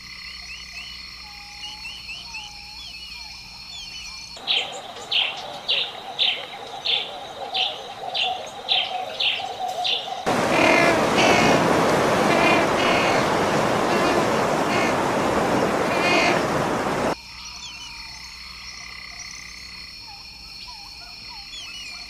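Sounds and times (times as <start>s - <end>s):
small birds chirping: 0.4s - 18.1s
penguin colony chattering: 4.4s - 17.2s.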